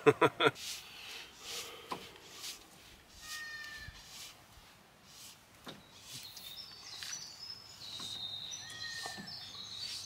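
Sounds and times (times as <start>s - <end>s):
songbirds whistling: 5.7s - 10.0s.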